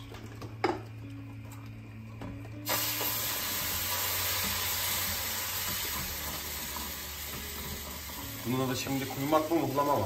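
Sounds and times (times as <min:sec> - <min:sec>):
water hissing in hot pan: 0:02.6 - 0:10.0.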